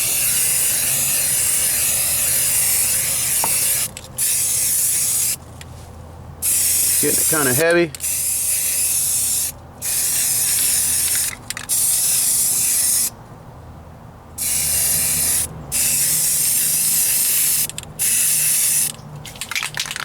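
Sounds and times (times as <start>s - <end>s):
aerosol spray can hissing: 0.0s - 5.4s, 6.4s - 13.1s.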